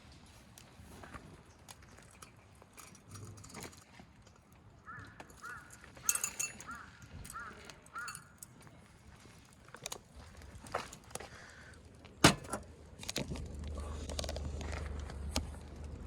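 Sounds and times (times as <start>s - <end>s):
bird calling: 4.8s - 8.4s
clink of metal or glass: 6.0s - 6.8s.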